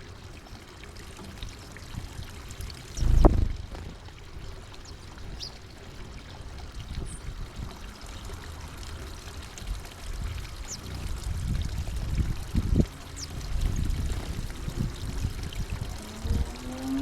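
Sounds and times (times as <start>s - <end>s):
water trickling: 0.0s - 17.0s
low rumbling: 2.8s - 4.1s.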